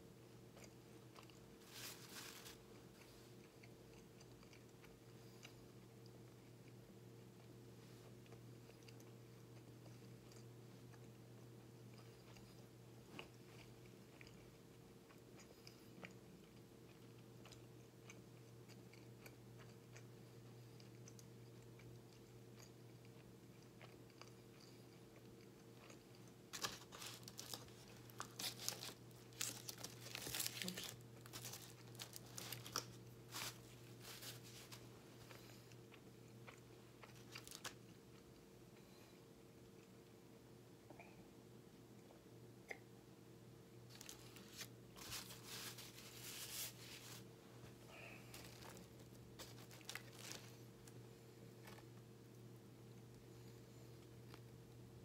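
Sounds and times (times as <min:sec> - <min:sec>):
close chewing: 0:00.5 - 0:06.8
foil wrapper crinkling: 0:01.6 - 0:02.7, 0:26.5 - 0:34.9, 0:37.1 - 0:37.8, 0:43.9 - 0:47.3, 0:47.9 - 0:51.0.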